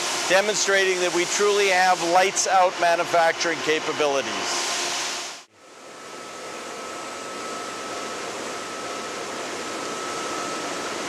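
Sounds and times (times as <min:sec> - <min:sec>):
machines running with hiss: 0:00.0 - 0:05.5
high machine whine: 0:00.0 - 0:11.0.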